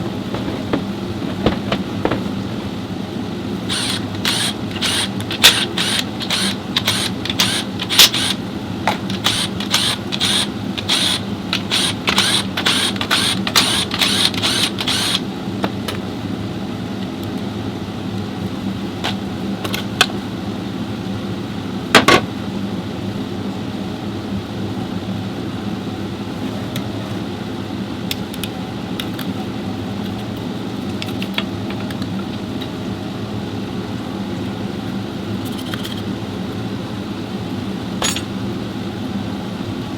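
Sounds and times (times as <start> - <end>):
steady mechanical hum: 0.0 - 39.9
rapid clicking and clatter: 3.7 - 15.2.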